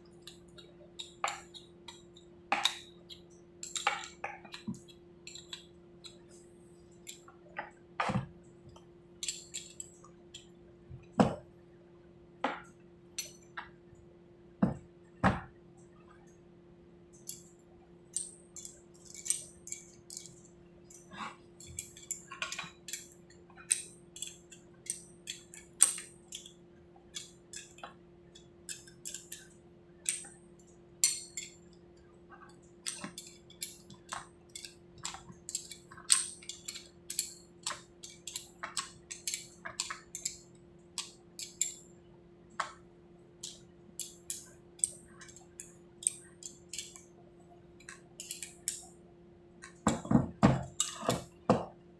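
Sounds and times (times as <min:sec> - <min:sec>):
steady low hum: 0:00.0 - 0:51.9
metal tools clinking and tapping: 0:00.2 - 0:06.4, 0:07.0 - 0:10.5, 0:17.2 - 0:26.5, 0:31.0 - 0:31.6, 0:32.4 - 0:40.4, 0:41.0 - 0:41.9, 0:43.4 - 0:47.1, 0:47.8 - 0:48.9, 0:49.6 - 0:51.7.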